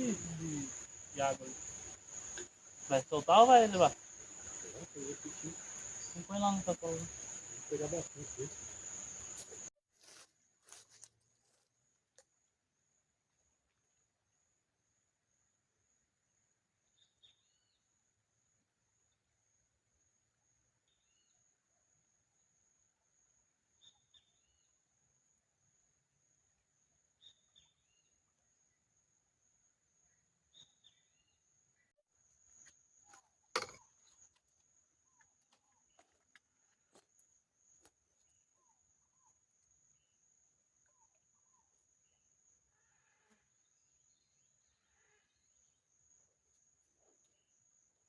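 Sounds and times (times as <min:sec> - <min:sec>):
faint bird chirps: 0:00.0 - 0:09.7, 0:16.8 - 0:18.0, 0:23.3 - 0:25.1, 0:27.1 - 0:36.9, 0:37.6 - 0:48.0
high-pitched insect trill: 0:00.0 - 0:09.7.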